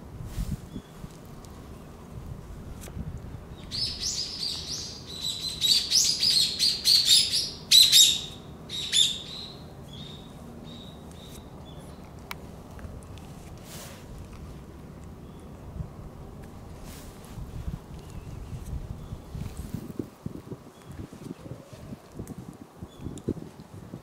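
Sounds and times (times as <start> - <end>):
small bird chirping: 3.6 - 12.0.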